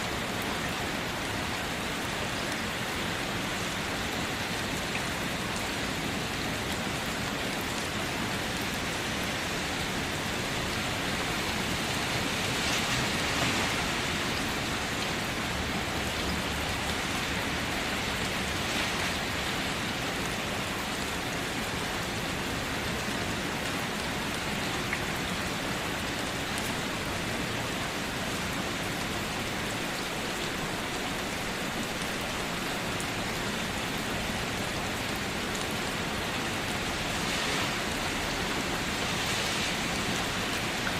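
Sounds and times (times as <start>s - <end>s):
rain hiss: 0.0s - 40.9s.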